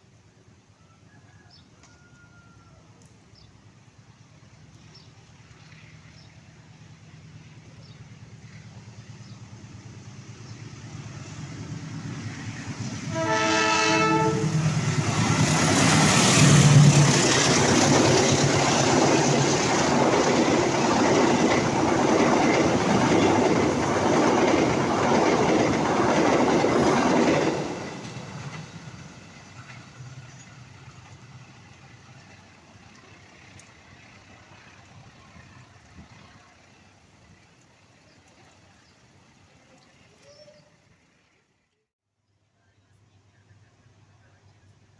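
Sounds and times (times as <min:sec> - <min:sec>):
train wheel and rail noise: 0:00.0 - 0:41.4
train horn blast: 0:13.0 - 0:14.8.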